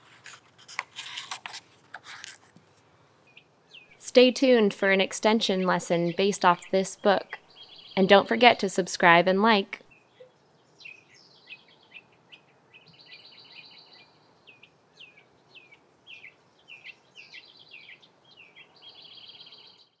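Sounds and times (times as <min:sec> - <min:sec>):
wild birds singing: 0:03.2 - 0:04.0, 0:05.5 - 0:08.2, 0:09.8 - 0:20.0.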